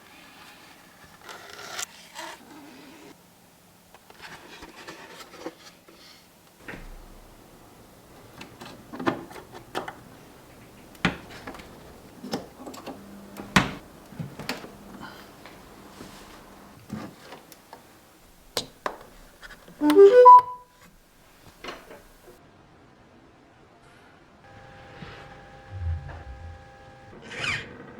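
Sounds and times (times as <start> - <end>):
short rising notes: 25.6 - 27.1.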